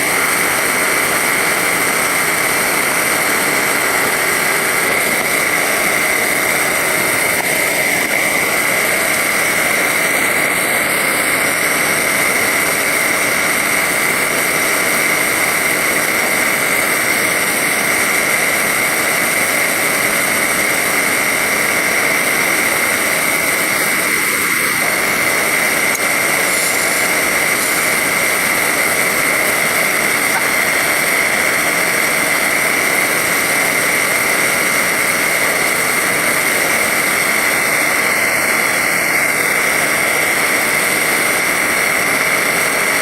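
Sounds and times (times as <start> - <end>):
machine whining and hissing: 0.0 - 43.0.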